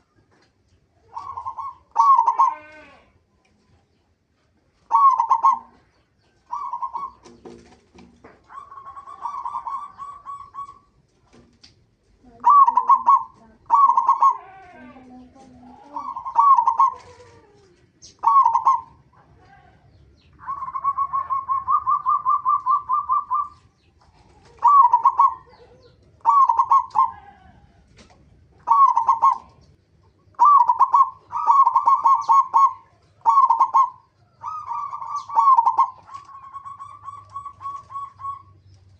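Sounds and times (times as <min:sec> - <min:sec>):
dove cooing: 0:01.0 - 0:03.1, 0:04.8 - 0:07.7, 0:08.3 - 0:11.0, 0:12.2 - 0:19.4, 0:20.4 - 0:27.9, 0:28.6 - 0:29.7, 0:30.3 - 0:38.8.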